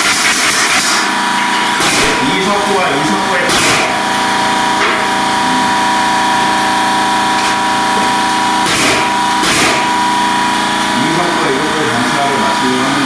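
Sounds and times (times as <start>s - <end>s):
pneumatic nailer firing: 0.0s - 2.4s, 3.4s - 5.4s, 6.5s - 11.0s
machine drone with pitched hum: 0.0s - 13.0s.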